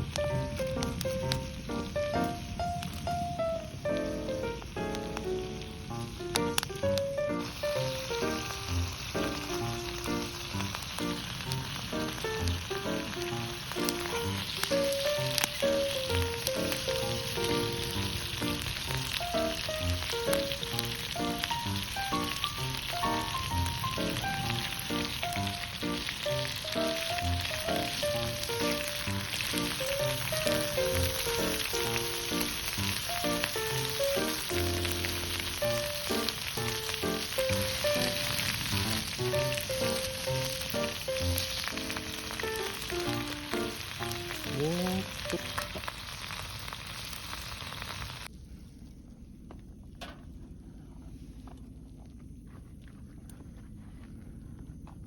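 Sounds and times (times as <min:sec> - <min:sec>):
food sizzling in a pan: 0:00.0 - 0:48.3
background music with bass: 0:04.0 - 0:45.7.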